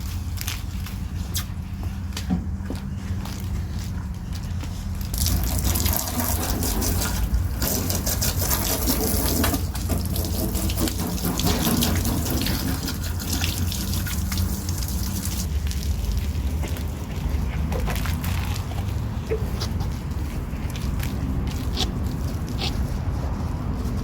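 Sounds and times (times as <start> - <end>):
water spraying onto car: 5.0 - 24.0.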